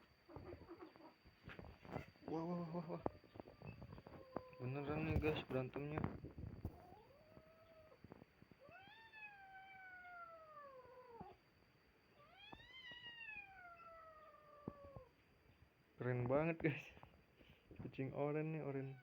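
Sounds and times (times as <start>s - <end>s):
cat yowling: 8.7s - 11.4s, 12.2s - 15.1s.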